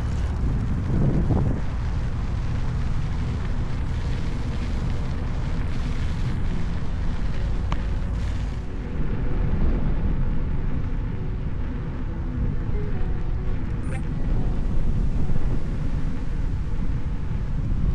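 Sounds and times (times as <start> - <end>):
wind buffeting microphone: 0.0 - 17.9.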